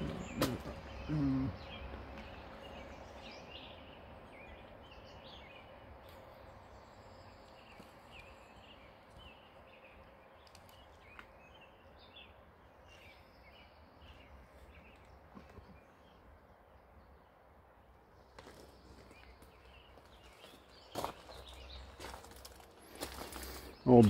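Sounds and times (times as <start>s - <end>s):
bird chirping: 0.0s - 17.3s, 18.2s - 24.0s.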